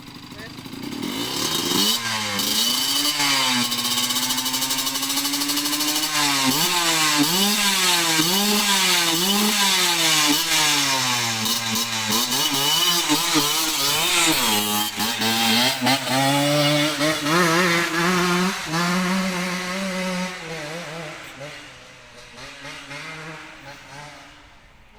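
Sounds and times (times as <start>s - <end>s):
motorcycle engine revving: 0.0s - 24.9s.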